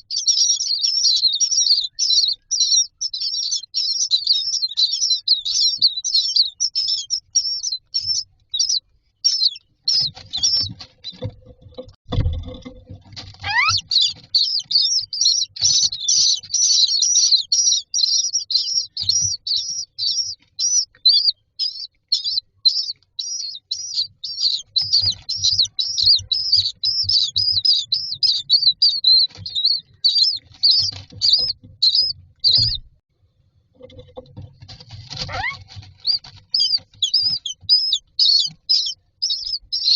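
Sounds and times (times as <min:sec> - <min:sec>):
chicks begging calls: 0:00.0 - 0:11.3, 0:13.2 - 0:32.9, 0:34.7 - 0:39.9.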